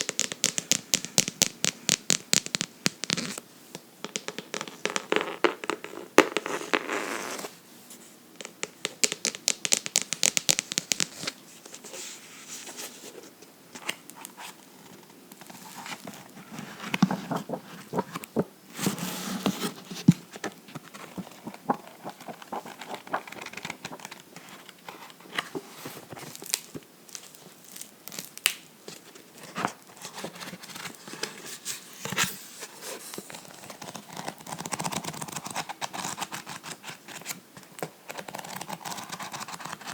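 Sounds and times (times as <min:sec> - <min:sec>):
fingers tapping on a book: 0:00.0 - 0:03.3, 0:08.4 - 0:11.3.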